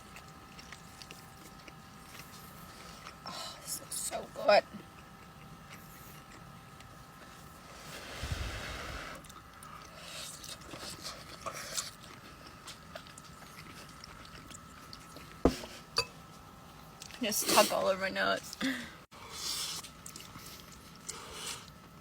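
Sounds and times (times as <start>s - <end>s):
faint chewing: 0.0s - 8.2s, 8.9s - 17.3s, 18.4s - 22.0s
faint steady hum: 0.0s - 22.0s.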